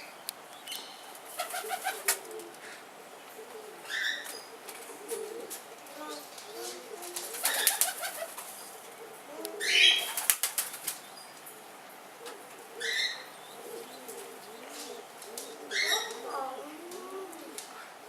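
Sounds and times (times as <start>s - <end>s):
low cooing calls: 0.0s - 18.0s
bird wings flapping: 1.3s - 2.6s, 6.6s - 8.6s, 10.0s - 11.0s.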